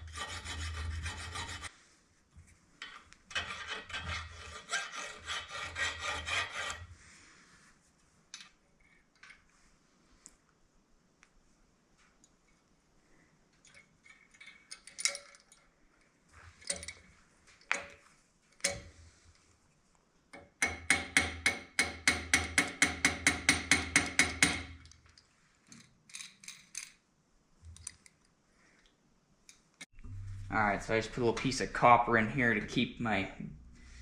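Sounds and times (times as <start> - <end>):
small metal parts clinking: 13.6 - 15.8, 24.8 - 27.0.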